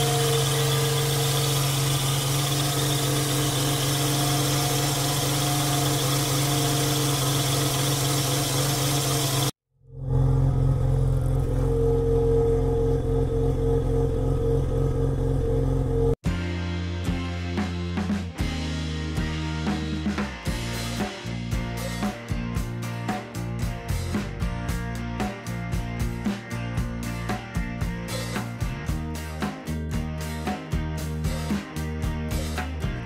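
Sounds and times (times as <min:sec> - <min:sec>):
rotary engine idling: 0:00.0 - 0:09.5.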